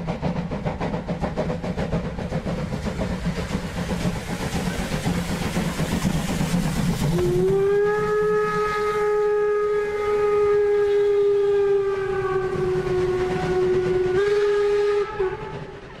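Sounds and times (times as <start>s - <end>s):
steam train whistle: 7.0s - 15.8s.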